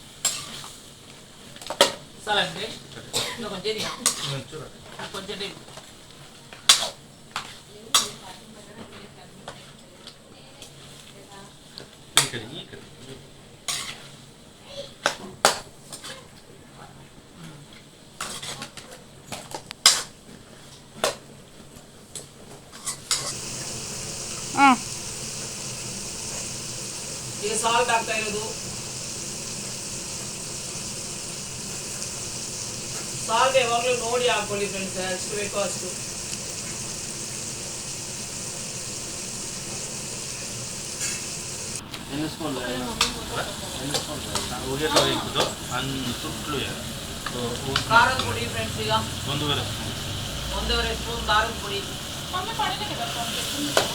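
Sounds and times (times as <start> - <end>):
food sizzling in hot oil: 0.0 - 1.0, 3.4 - 5.4, 13.7 - 14.3, 22.8 - 53.9
steady hiss: 23.2 - 53.9.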